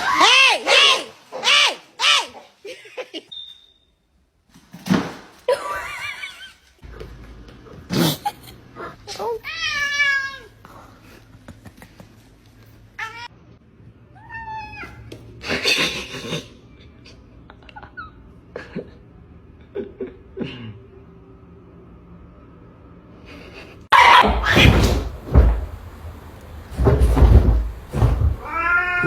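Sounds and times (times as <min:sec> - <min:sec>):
cat meowing: 0:28.4 - 0:29.0.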